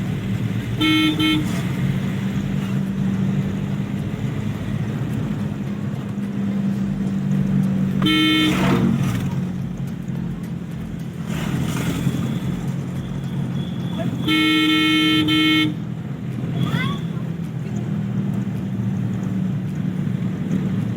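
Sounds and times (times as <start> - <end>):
car engine and road hum: 0.0 - 20.9
car horn honking: 0.7 - 2.0, 7.9 - 9.0, 12.1 - 15.9.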